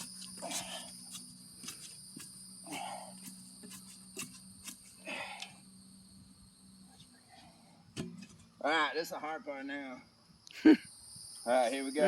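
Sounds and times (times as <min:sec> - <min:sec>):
high-pitched insect drone: 0:00.0 - 0:07.0, 0:08.6 - 0:12.0.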